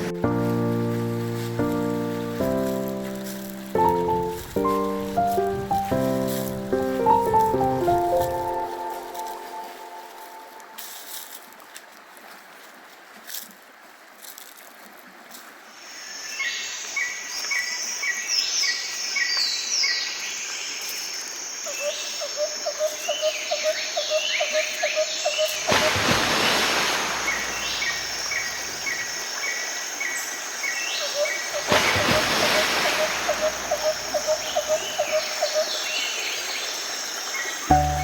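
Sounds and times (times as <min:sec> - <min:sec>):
birds chirping: 0:23.0 - 0:29.2, 0:30.7 - 0:36.3.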